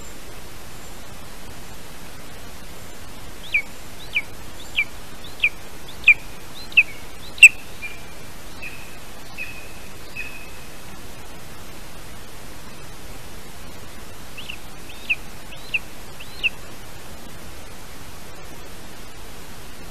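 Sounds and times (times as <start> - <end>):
steady hiss: 0.0 - 19.9
bird calling sharp notes: 3.4 - 10.7, 14.4 - 16.6.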